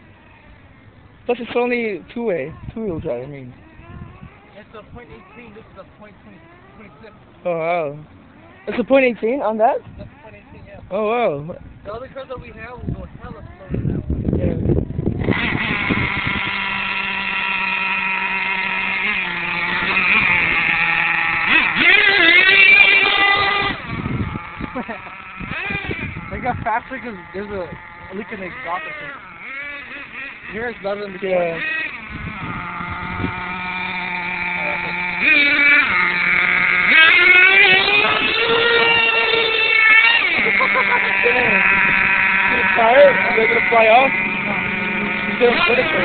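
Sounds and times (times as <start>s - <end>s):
small nitro engine whining: 0.0s - 46.0s.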